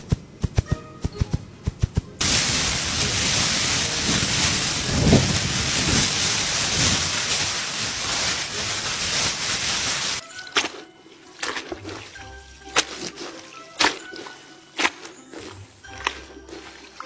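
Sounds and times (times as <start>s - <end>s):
low thunder-like rumble: 2.2s - 8.8s
hiss like heavy rain: 2.2s - 10.2s.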